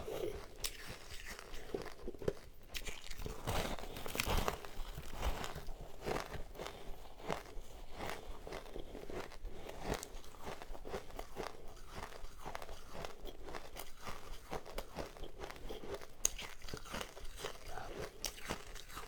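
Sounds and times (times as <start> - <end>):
chewing crunchy ice: 0.0 - 19.0.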